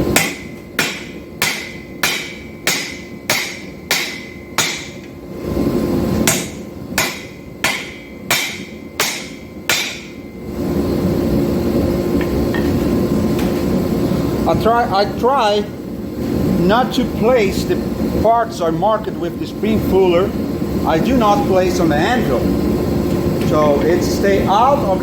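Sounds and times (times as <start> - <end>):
hammer ringing on anvil: 0.1 - 5.1, 6.2 - 10.4.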